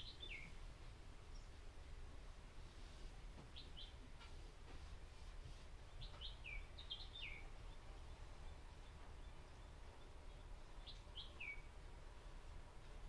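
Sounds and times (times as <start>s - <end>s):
small bird chirping: 0.0s - 0.6s, 3.5s - 4.3s, 5.9s - 11.7s
low steady hum: 0.0s - 13.0s.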